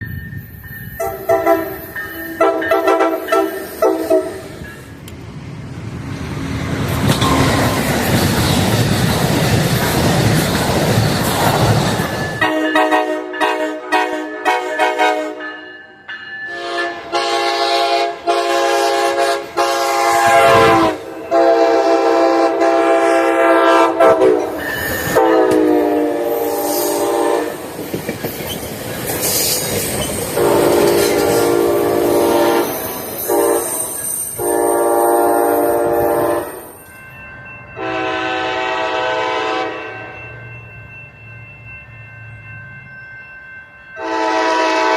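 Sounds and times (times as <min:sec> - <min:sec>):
train horn blasts: 0:01.0 - 0:04.5, 0:12.4 - 0:15.6, 0:16.5 - 0:24.5, 0:25.1 - 0:27.6, 0:30.4 - 0:36.7, 0:37.8 - 0:40.2, 0:44.0 - 0:44.9
train wheels clacking on rails: 0:06.6 - 0:15.1, 0:24.2 - 0:34.7.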